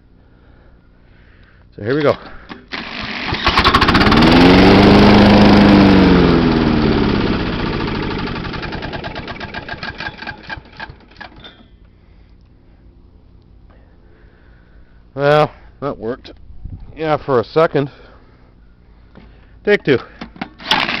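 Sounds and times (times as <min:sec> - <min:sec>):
drill cranking engine: 0:02.0 - 0:11.6, 0:20.6 - 0:21.0
mower engine starting and dying: 0:02.0 - 0:11.8, 0:20.6 - 0:21.0.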